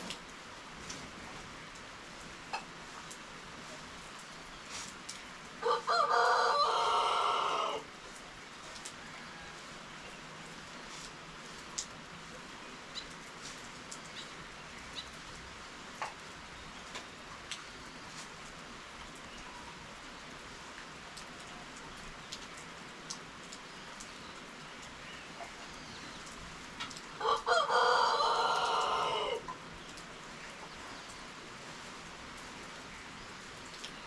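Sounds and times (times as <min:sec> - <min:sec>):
steady rain: 0:00.0 - 0:34.0
rooster crowing: 0:05.6 - 0:07.9, 0:09.0 - 0:09.8, 0:27.2 - 0:29.4.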